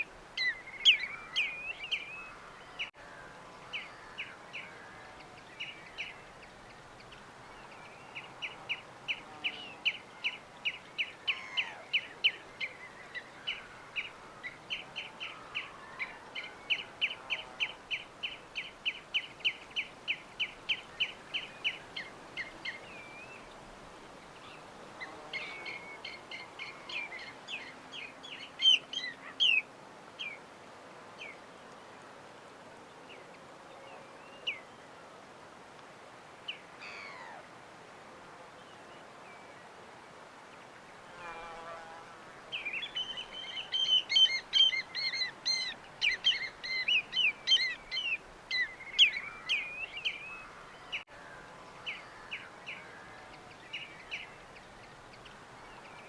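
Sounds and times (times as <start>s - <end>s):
faint steady hiss: 0.0s - 56.0s
small birds chirping: 3.6s - 30.5s, 42.4s - 56.0s.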